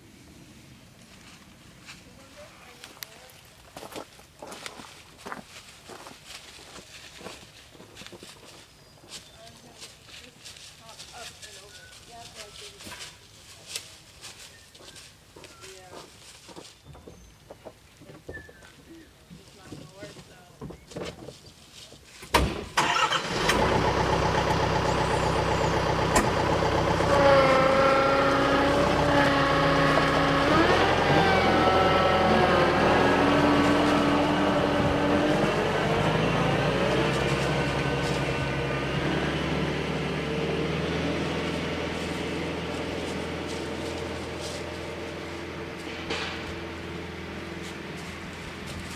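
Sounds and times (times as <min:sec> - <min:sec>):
tractor engine starting and running: 0:22.3 - 0:48.9.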